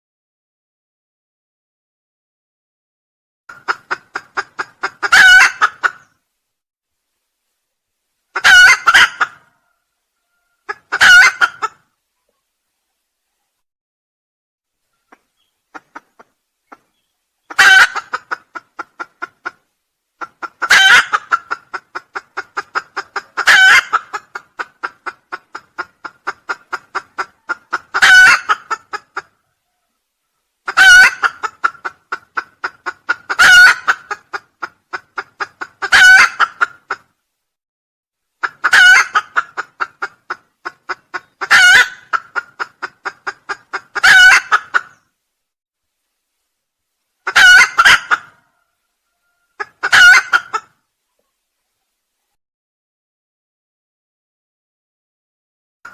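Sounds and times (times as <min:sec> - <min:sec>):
junglefowl crowing: 0:03.6 - 0:06.1, 0:08.3 - 0:11.8, 0:14.9 - 0:19.3, 0:20.2 - 0:32.0, 0:33.1 - 0:34.4, 0:35.8 - 0:37.0, 0:38.4 - 0:39.8, 0:40.6 - 0:45.0, 0:47.2 - 0:51.3.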